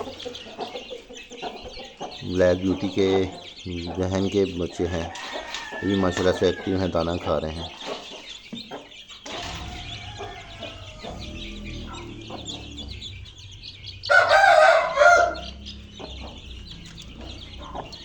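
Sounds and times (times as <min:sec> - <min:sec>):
chickens clucking: 0:00.0 - 0:18.0
chicks cheeping: 0:00.0 - 0:18.0
rooster crowing: 0:05.1 - 0:06.7, 0:09.4 - 0:17.9.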